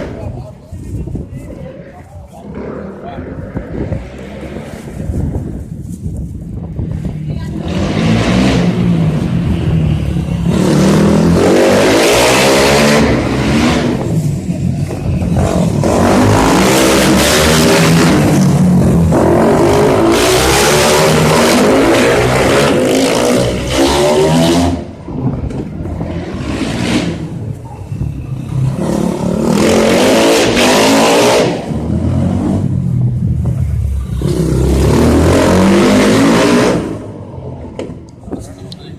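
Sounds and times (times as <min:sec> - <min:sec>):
motorcycle engines revving hard: 0:06.9 - 0:38.0.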